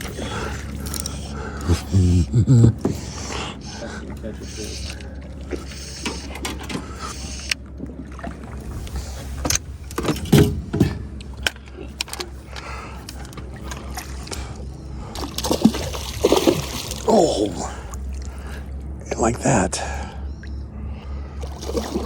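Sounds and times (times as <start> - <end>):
low rumble: 0.0 - 22.0
water lapping: 0.0 - 22.0
water splashes: 2.9 - 9.4, 13.1 - 19.0, 21.4 - 22.0
knocks against boat: 10.0 - 11.2.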